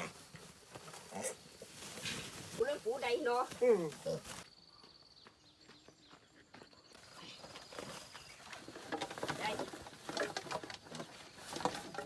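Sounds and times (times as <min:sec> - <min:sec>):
rustling: 0:00.0 - 0:04.4, 0:07.0 - 0:12.0
piglets grunting and squeaking: 0:01.0 - 0:01.4, 0:03.7 - 0:04.4.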